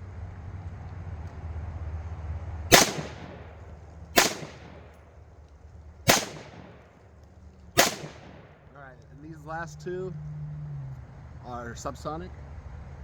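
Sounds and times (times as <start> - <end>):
rifle shots: 2.7 - 5.0, 6.1 - 6.9, 7.8 - 8.8.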